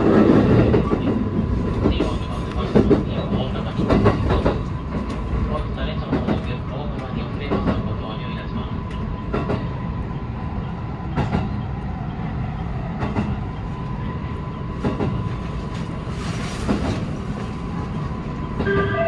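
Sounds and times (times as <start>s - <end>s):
wheel and rail rumble: 0.0s - 19.0s
melodic train horn: 18.6s - 19.0s.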